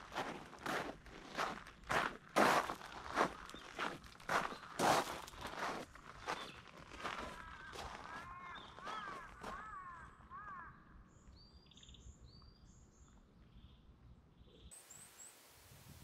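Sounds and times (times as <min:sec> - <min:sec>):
background hiss: 0:14.7 - 0:16.0.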